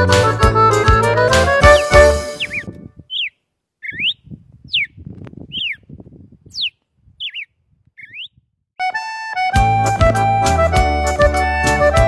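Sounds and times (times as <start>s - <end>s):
bird whistling: 1.6s - 5.8s, 6.5s - 8.4s.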